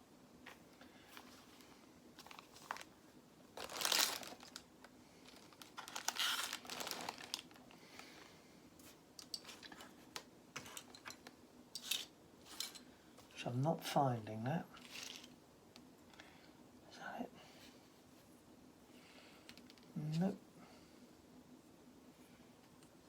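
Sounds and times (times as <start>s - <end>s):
plastic bags crinkling: 2.2s - 8.2s, 14.8s - 15.4s.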